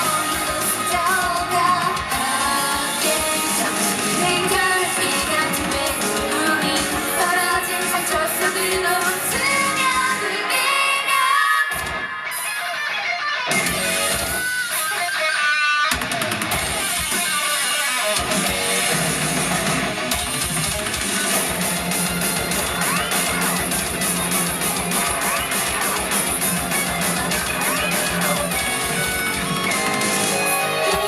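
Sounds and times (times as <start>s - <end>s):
bass and drums: 0.0s - 10.4s, 13.5s - 15.1s, 15.9s - 31.0s
person singing: 0.0s - 12.5s
electric guitar: 0.0s - 31.0s.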